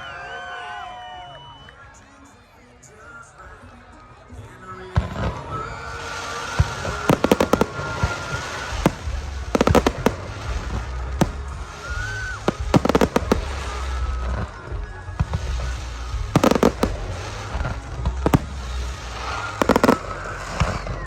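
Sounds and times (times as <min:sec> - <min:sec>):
crackling firework volleys: 0:04.4 - 0:21.0
fireworks bangs: 0:05.0 - 0:21.0
low booming rumble: 0:06.9 - 0:21.0.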